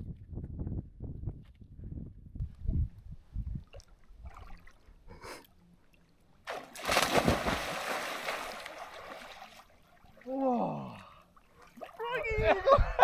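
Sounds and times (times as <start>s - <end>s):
water rushing and splashing: 6.5s - 10.7s.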